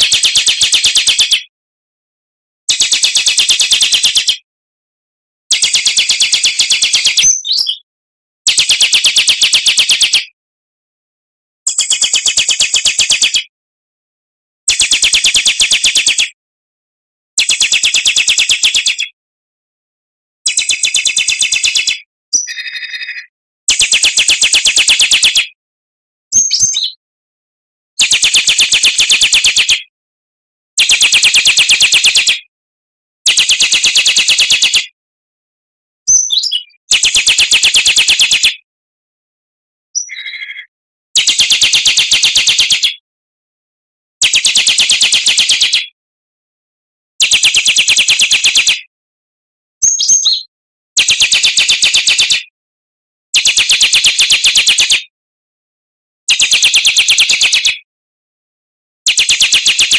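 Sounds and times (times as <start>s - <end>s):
bird rapid trill: 5.6s - 7.8s, 20.5s - 23.2s, 26.4s - 27.0s, 36.1s - 38.5s, 40.0s - 40.7s, 44.3s - 45.8s, 59.1s - 59.8s.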